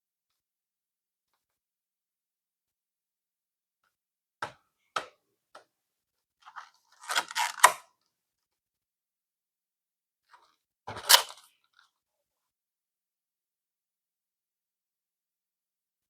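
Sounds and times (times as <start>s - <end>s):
packaging crinkling and tapping: 6.5s - 7.8s
packaging clicks: 7.0s - 7.8s.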